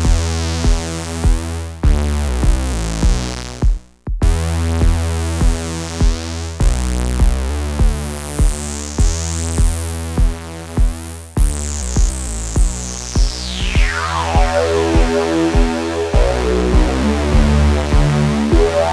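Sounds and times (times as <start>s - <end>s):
kick drum pulse: 0.0s - 18.9s
buzzy synth note: 11.4s - 18.9s.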